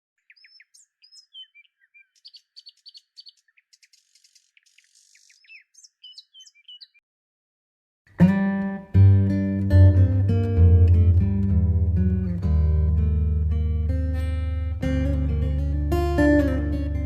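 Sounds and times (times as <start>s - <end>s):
birds chirping and whistling: 0.2s - 7.0s
acoustic guitar music: 8.1s - 17.0s.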